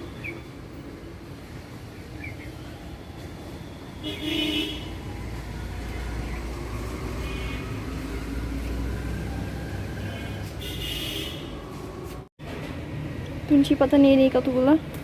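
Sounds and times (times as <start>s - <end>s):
street traffic rumble: 0.0s - 15.0s
vehicle horn toots: 4.0s - 4.9s, 10.6s - 11.6s.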